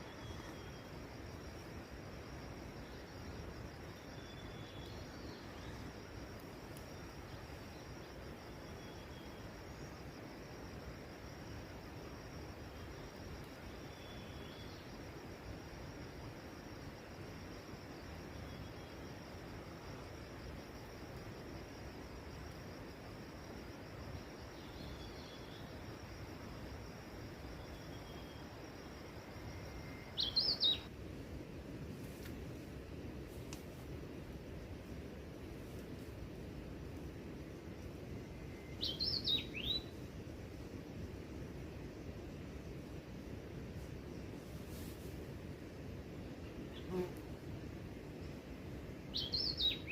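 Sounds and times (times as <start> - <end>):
insects chirping: 0.0 - 49.9
steady hiss: 0.0 - 49.9.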